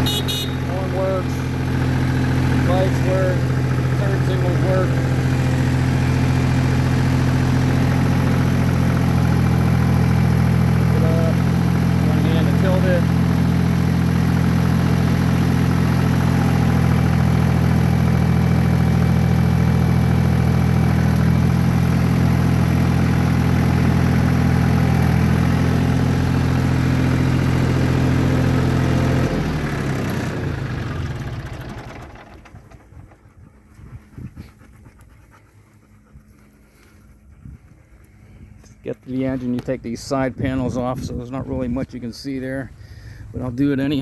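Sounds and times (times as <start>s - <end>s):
diesel tractor engine idling: 0.0s - 33.8s.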